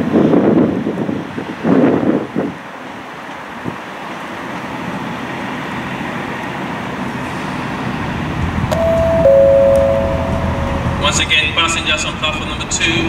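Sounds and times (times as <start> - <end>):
diesel train engine rumbling: 2.8 - 13.0.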